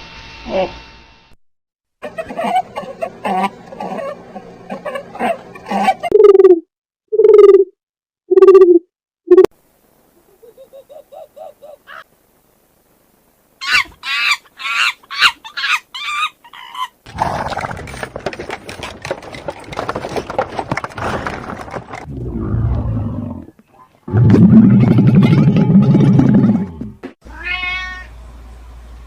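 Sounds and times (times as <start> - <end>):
big cat growling: 17.1 - 18.2, 21.0 - 27.0.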